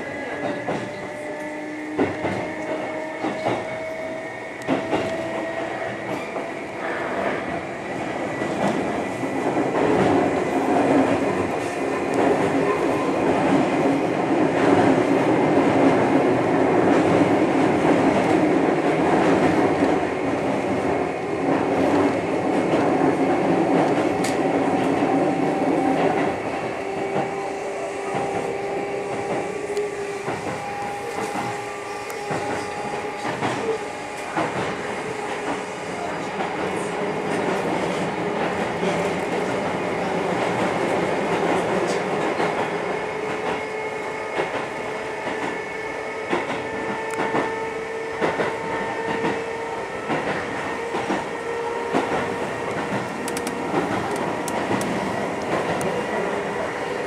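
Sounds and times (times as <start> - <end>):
electric train rumbling: 0.0 - 57.0
clicks over the rails: 51.9 - 55.9.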